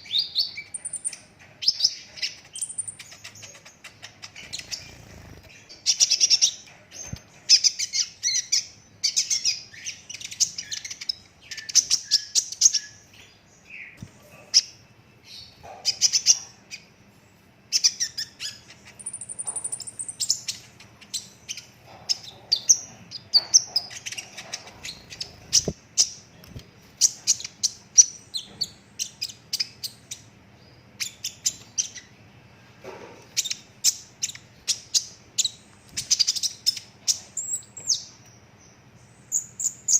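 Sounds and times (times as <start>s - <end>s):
bird chips and trills: 0.0s - 16.9s, 17.7s - 26.3s.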